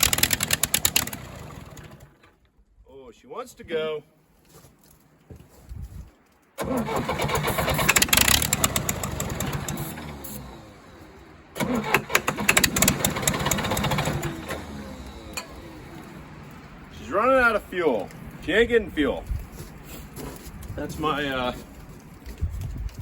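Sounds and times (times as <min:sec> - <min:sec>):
diesel engine firing and sagging: 0:00.0 - 0:02.2, 0:06.6 - 0:17.6.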